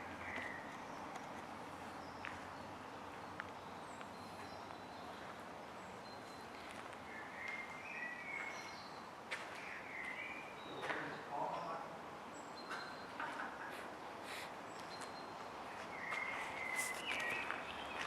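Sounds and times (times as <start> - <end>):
faint bird chirps: 14.3 - 18.0.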